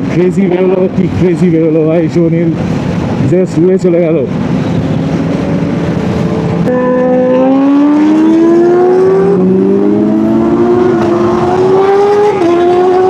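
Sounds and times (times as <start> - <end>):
wind rush: 0.0 - 13.0
motorcycle engine accelerating: 4.8 - 13.0.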